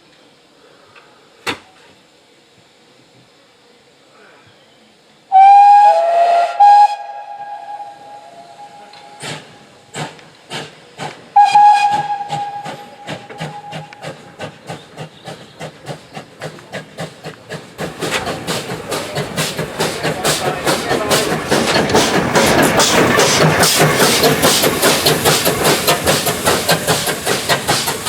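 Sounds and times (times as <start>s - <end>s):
steam locomotive whistle: 5.3s - 9.4s, 11.3s - 14.3s
steam locomotive exhaust beats: 5.3s - 28.0s.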